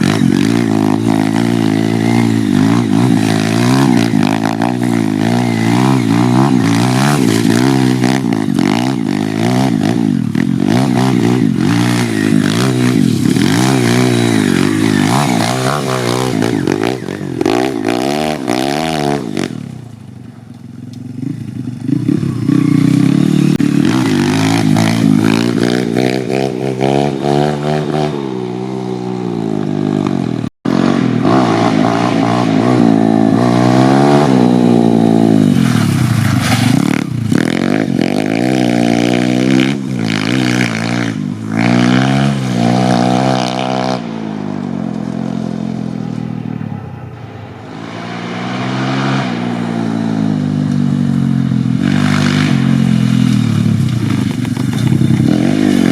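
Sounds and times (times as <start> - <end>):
motorbike engine revving: 0.0 - 55.9.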